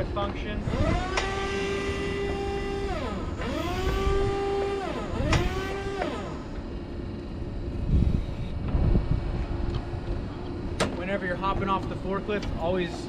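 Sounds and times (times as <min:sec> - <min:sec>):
forklift hydraulic pump whining: 0:00.0 - 0:08.8.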